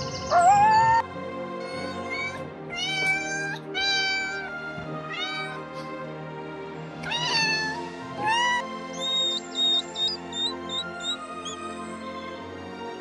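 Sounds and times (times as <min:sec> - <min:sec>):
background music: 0:00.0 - 0:13.0
cat meowing: 0:05.1 - 0:05.7, 0:07.0 - 0:11.0.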